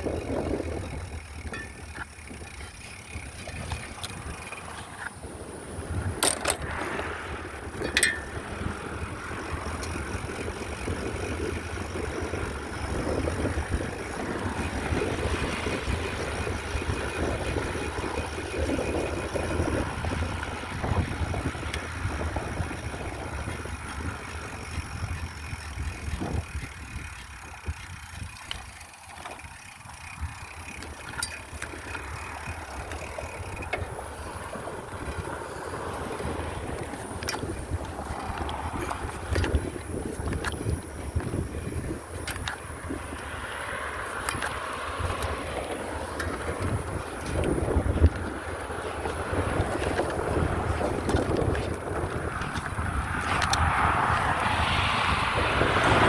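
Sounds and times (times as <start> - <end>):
bicycle rumbling: 0.0 - 56.0
wind on microphone: 0.0 - 56.0
light ticks: 52.4 - 54.3.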